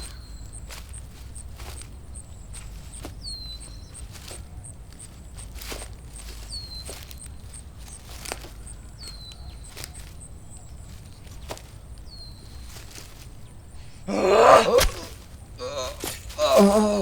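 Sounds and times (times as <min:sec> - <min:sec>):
bird chirping: 0:00.0 - 0:14.2
footfalls crunching in undergrowth: 0:00.0 - 0:17.0.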